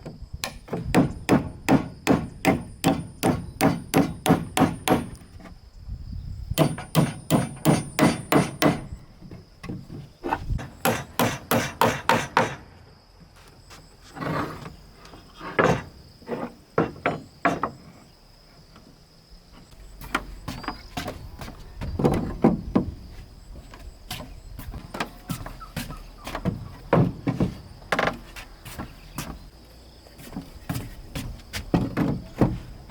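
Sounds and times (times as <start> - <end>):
hammer striking wood: 0.4 - 5.2, 6.6 - 8.9, 10.6 - 12.7.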